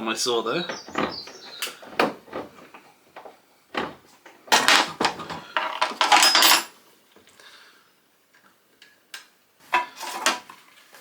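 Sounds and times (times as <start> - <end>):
metal parts clattering and scraping: 3.8 - 6.7.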